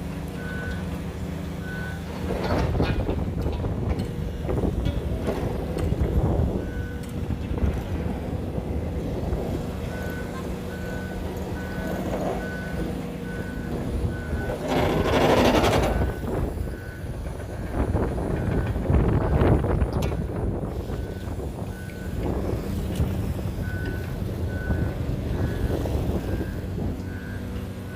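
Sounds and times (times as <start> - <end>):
diesel engines rumbling: 0.0 - 27.9
reversing alarm beeping: 0.3 - 1.0, 1.6 - 2.1, 5.8 - 7.2, 9.8 - 22.7, 23.5 - 27.9.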